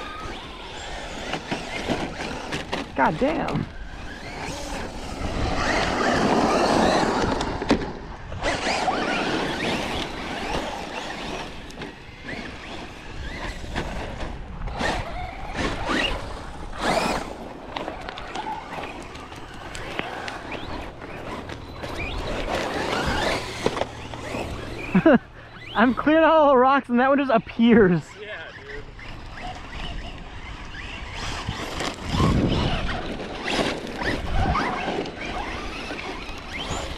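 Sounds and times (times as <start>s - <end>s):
electric motor whine: 0.0s - 26.5s, 27.1s - 36.9s
tyres crunching on gravel: 15.1s - 26.1s.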